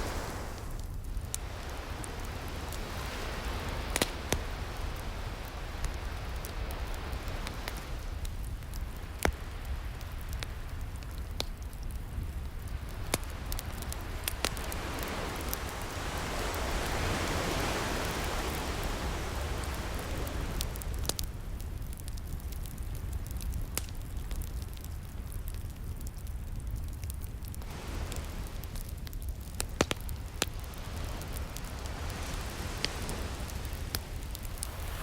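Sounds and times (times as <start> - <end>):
ocean waves: 0.0 - 10.8, 12.6 - 21.6, 27.6 - 35.0
wood fire crackling: 0.0 - 35.0.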